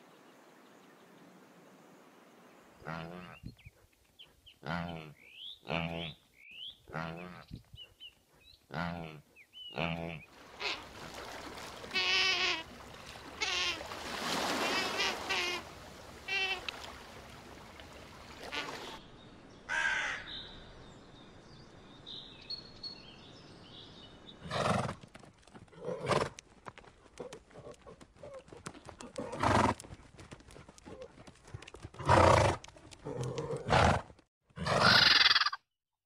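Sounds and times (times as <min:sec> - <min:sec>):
crow caws: 0:19.7 - 0:20.3.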